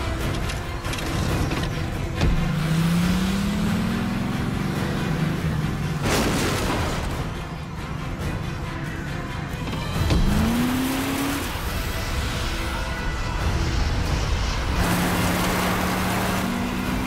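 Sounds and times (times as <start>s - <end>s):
background music: 0.0s - 17.0s
car engine revving: 0.9s - 6.4s, 9.9s - 12.2s, 13.6s - 17.0s.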